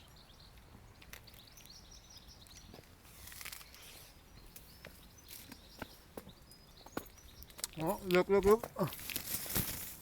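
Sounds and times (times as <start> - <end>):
outdoor background noise: 0.0 - 10.0
small birds chirping: 0.0 - 10.0.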